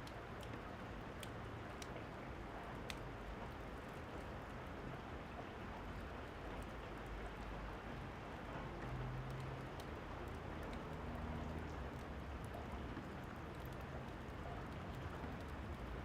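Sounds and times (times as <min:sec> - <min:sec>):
wood fire crackling: 0:00.0 - 0:01.9
rain falling: 0:00.0 - 0:16.0.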